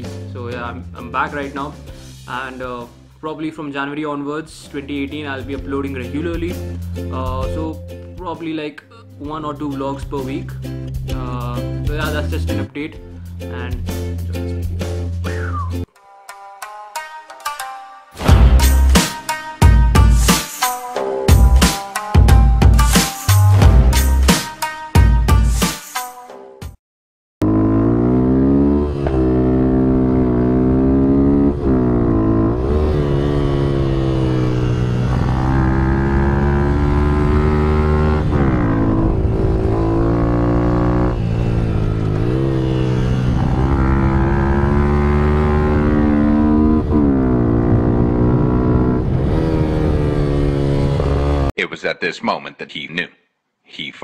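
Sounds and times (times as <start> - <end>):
motorcycle engine revving: 27.4 - 51.5.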